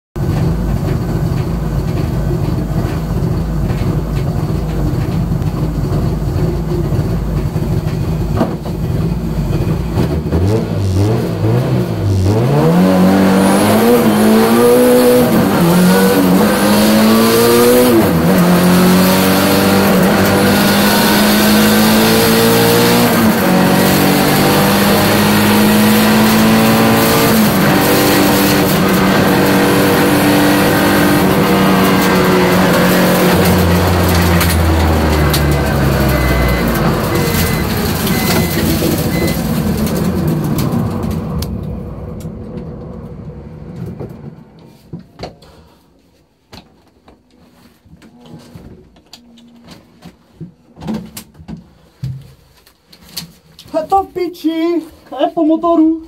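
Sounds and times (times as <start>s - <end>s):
race car engine accelerating: 0.2s - 44.8s.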